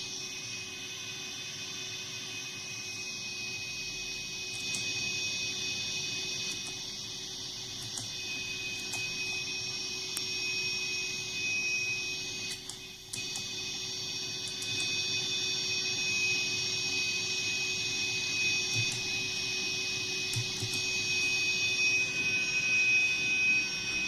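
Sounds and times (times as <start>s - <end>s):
high-pitched whine tones: 0.0s - 24.0s
low electronic hum: 6.3s - 24.0s.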